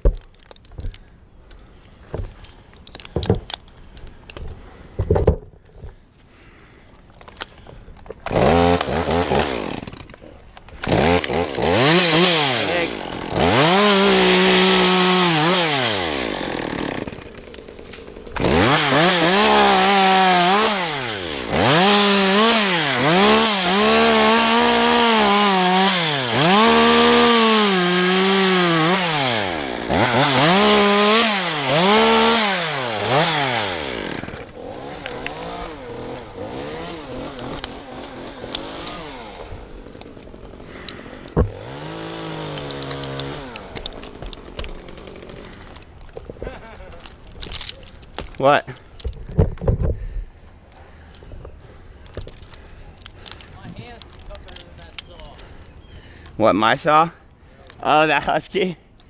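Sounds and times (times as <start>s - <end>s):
chainsaw revving and cutting wood: 8.2s - 49.1s.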